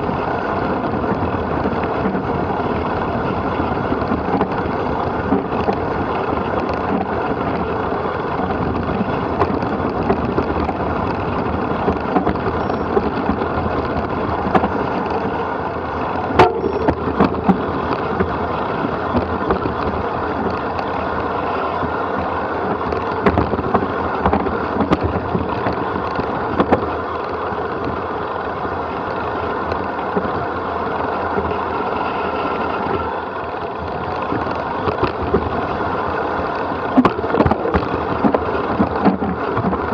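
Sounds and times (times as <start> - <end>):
rolling noise on rough trail: 0.0 - 39.9
wind rushing over microphone: 0.0 - 39.9
sharp knocks and rattles: 16.1 - 20.8.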